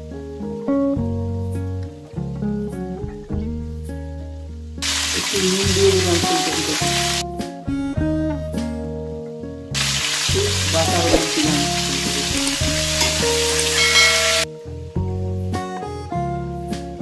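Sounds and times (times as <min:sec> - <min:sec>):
instrumental background music: 0:00.0 - 0:17.0
loud sizzle of frying: 0:03.6 - 0:07.3, 0:09.7 - 0:15.6.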